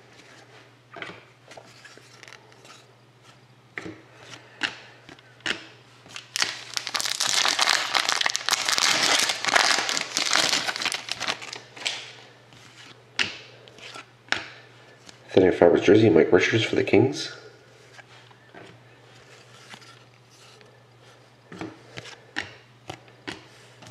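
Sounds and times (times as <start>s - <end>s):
plastic crinkling: 6.1s - 12.1s.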